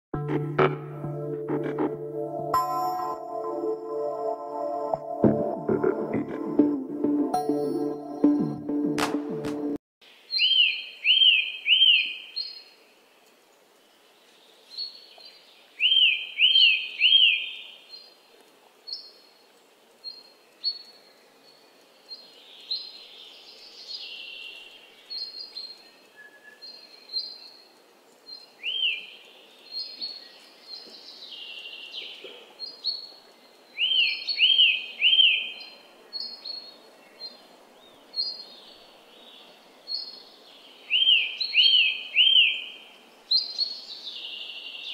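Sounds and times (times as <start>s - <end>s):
faint background noise: 10.0s - 44.9s
whistled bird calls: 10.4s - 12.2s, 33.8s - 35.6s, 40.9s - 42.7s.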